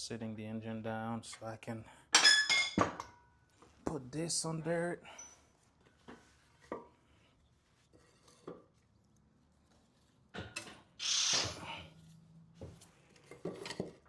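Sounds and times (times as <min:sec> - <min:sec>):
metal tools clinking and knocking: 0:02.2 - 0:03.1.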